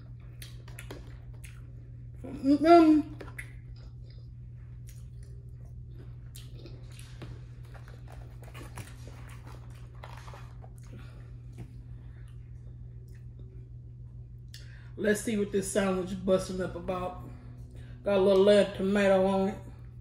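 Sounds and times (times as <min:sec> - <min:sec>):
person chewing wetly: 0:00.0 - 0:02.2, 0:03.1 - 0:13.6
steady low hum: 0:00.0 - 0:20.0
mouth clicks and smacks: 0:03.2 - 0:04.2.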